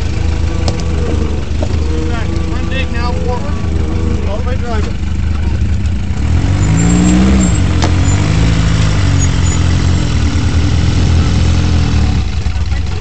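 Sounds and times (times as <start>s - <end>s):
off-road engine revving: 0.0s - 13.0s.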